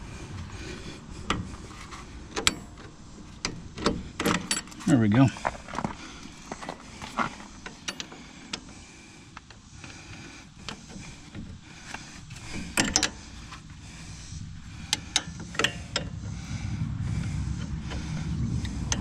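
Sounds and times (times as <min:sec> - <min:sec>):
low rumble: 0:00.0 - 0:04.2, 0:12.3 - 0:19.0.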